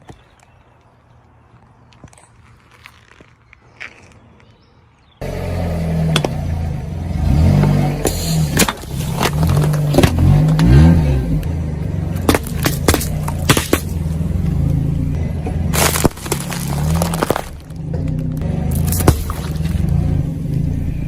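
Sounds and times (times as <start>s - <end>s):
car engine revving: 5.2s - 21.0s.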